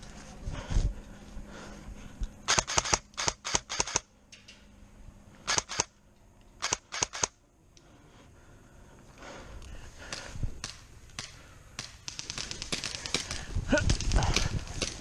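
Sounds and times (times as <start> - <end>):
airsoft guns firing: 2.5 - 4.1, 10.1 - 15.0.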